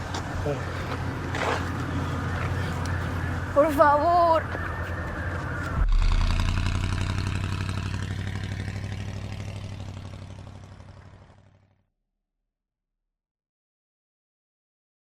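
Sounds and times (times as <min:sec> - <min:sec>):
vehicle engine pulsing: 0:00.0 - 0:11.7.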